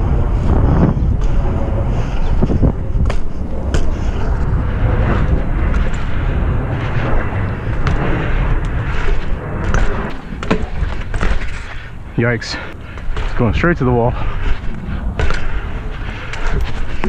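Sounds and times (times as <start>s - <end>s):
wind buffeting microphone: 0.0s - 17.0s
bike knocks and clacks on concrete: 2.3s - 4.1s, 9.0s - 11.9s, 12.9s - 13.6s, 14.2s - 17.0s.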